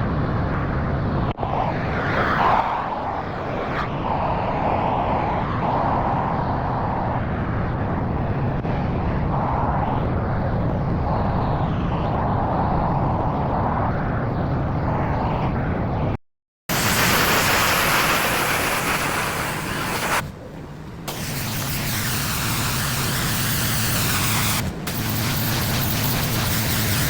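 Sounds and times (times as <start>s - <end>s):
high-pressure spray hissing: 16.7s - 20.3s, 21.1s - 27.0s
pressure washer engine droning: 16.7s - 27.0s.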